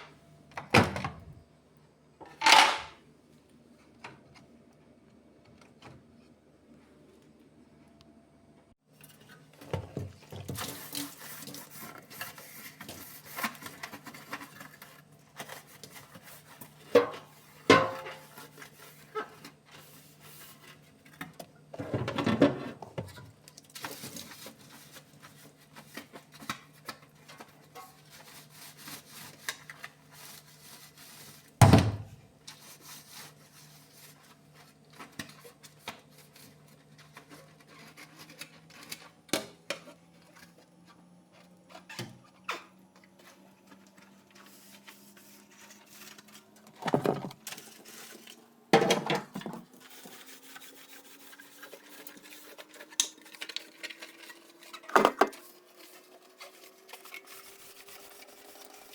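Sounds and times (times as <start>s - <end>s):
dishes and containers clinking: 2.2s - 3.0s, 46.7s - 47.5s, 48.8s - 49.7s, 53.7s - 55.4s.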